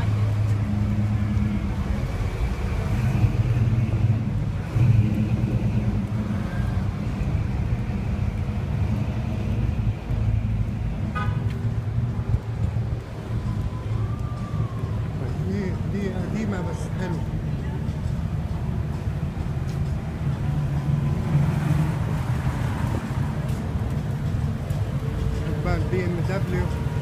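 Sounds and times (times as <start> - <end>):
car engines in traffic: 0.0 - 27.0.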